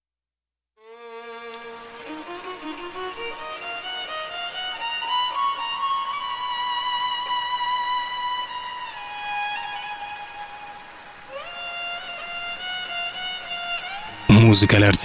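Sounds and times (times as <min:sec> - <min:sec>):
violin melody: 0:00.8 - 0:15.0.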